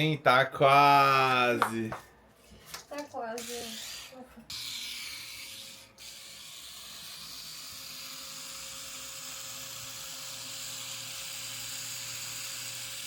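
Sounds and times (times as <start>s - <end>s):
tattoo machine buzzing: 3.4s - 13.0s.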